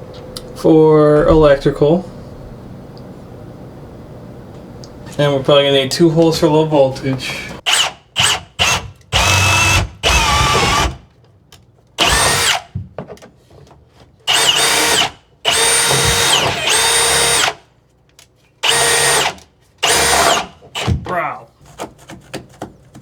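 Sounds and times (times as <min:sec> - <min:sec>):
power drill whining: 0:07.6 - 0:11.0, 0:12.0 - 0:12.7, 0:14.3 - 0:17.6, 0:18.6 - 0:21.0.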